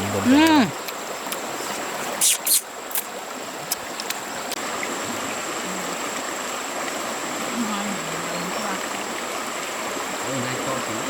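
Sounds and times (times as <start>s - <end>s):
short splashing sounds: 0.0s - 3.1s
water running steadily: 0.0s - 11.0s.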